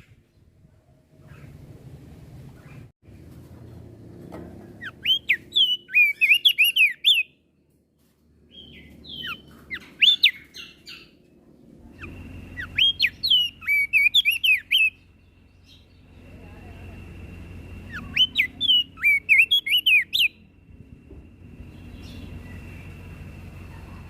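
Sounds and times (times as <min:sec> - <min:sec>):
bird chattering song: 0:04.8 - 0:07.4, 0:08.5 - 0:11.2, 0:11.8 - 0:17.0, 0:17.6 - 0:20.9, 0:21.5 - 0:24.0.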